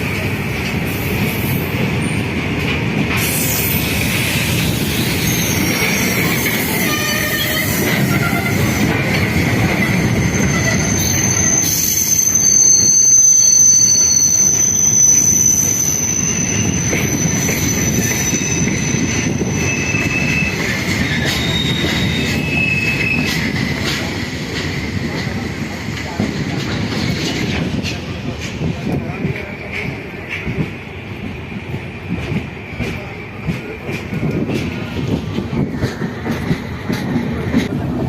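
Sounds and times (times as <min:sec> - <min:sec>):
train wheels rumbling on rails: 0:00.0 - 0:38.0
high-pitched wheel squeals: 0:03.3 - 0:09.0, 0:09.6 - 0:23.6.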